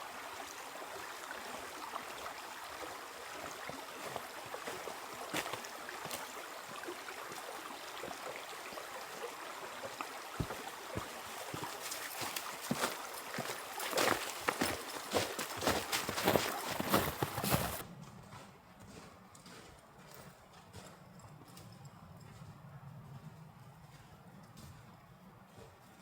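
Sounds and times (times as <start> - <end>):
running water: 0.0 - 17.8.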